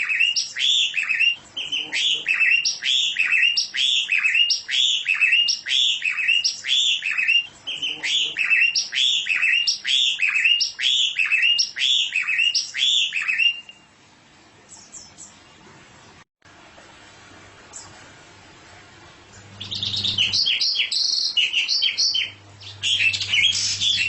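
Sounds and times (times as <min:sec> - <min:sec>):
songbird chirping: 0:00.0 - 0:13.9, 0:19.3 - 0:24.0.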